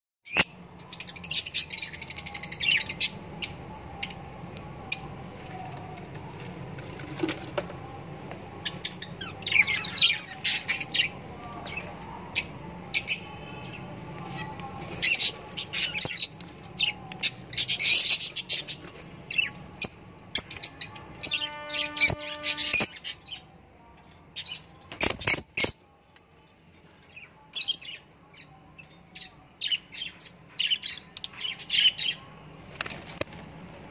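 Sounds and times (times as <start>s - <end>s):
birds chirping: 7.7s - 23.5s.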